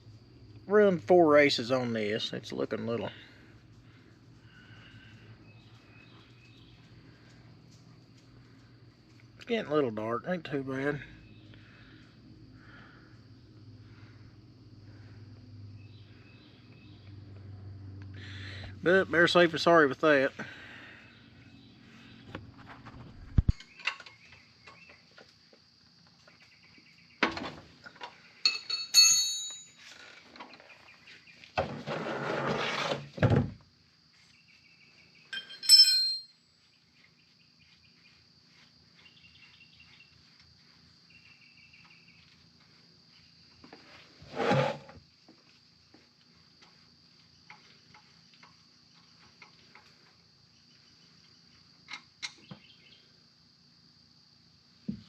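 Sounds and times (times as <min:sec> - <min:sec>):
crickets chirring: 0:00.0 - 0:55.0
metal tool clinks: 0:28.4 - 0:29.8, 0:35.3 - 0:36.5
scraping noise: 0:31.6 - 0:33.1, 0:44.0 - 0:45.0
thump: 0:33.2 - 0:33.6.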